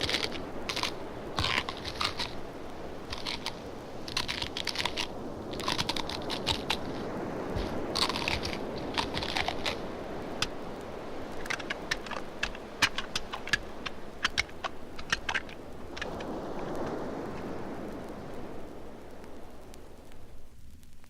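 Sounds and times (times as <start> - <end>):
sharp cracks and crunching clicks: 0.0 - 10.6, 11.2 - 17.0
steady rumbling noise: 0.0 - 21.0.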